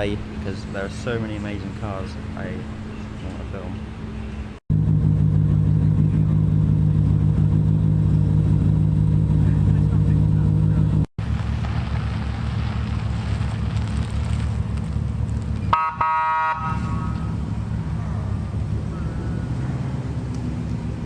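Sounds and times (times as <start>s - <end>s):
car engine idling: 0.0s - 21.0s
car horn toot: 15.7s - 17.3s.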